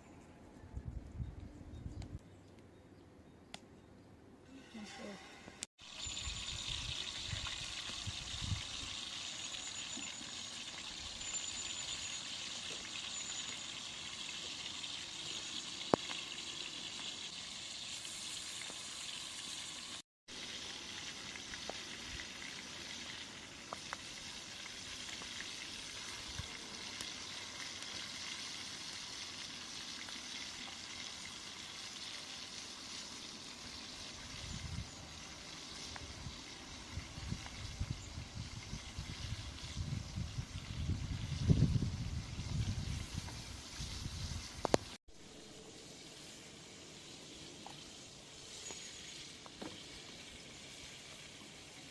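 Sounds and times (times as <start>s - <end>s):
food sizzling in a pan: 4.6s - 51.9s.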